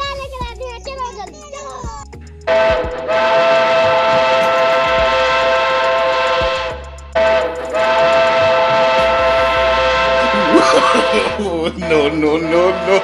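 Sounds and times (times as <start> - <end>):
loud horn blasts: 2.5 - 13.0.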